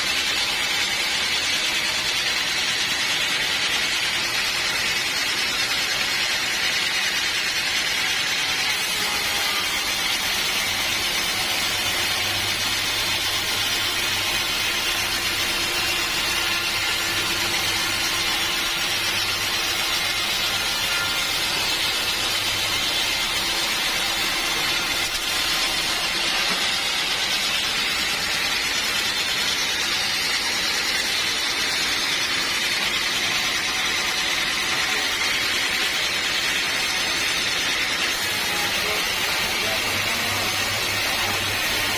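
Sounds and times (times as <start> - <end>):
sawmill machinery whirring: 0.0 - 41.9.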